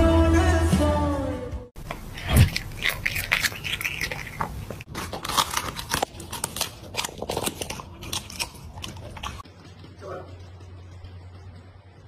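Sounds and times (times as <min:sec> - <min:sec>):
pet chewing cabbage leaves: 0:01.8 - 0:10.6.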